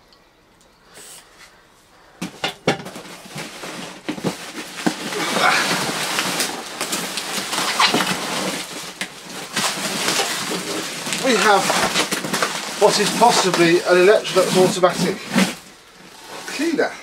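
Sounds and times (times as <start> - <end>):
packing rustling and scraping: 2.2 - 17.0.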